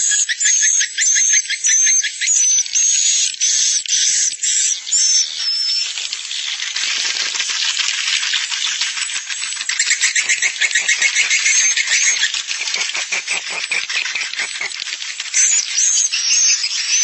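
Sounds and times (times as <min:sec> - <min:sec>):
rapid trilling chatter: 0:08.2 - 0:16.1.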